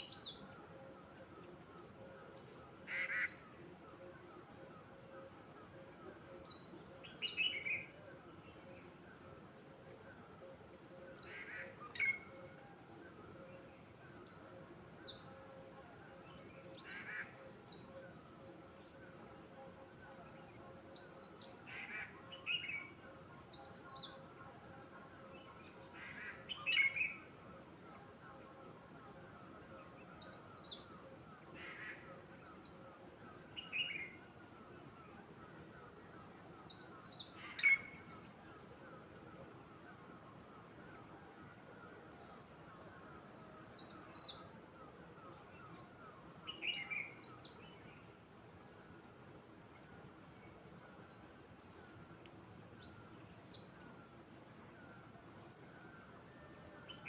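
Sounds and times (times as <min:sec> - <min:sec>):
songbird singing high phrases: 0:14.1 - 0:15.3, 0:16.2 - 0:18.9, 0:20.3 - 0:21.6, 0:22.3 - 0:24.3, 0:25.3 - 0:27.5, 0:29.7 - 0:31.0, 0:32.4 - 0:34.2, 0:35.7 - 0:38.2, 0:40.0 - 0:41.4, 0:43.2 - 0:44.5, 0:45.6 - 0:48.1, 0:52.6 - 0:54.0, 0:56.0 - 0:57.0.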